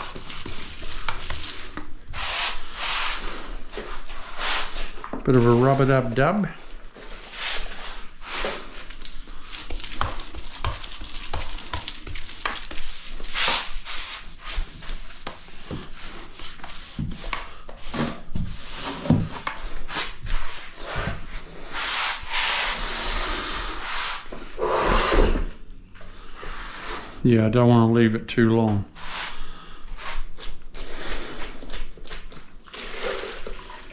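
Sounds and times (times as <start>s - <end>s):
grout scraping over tiles: 0.0s - 25.5s.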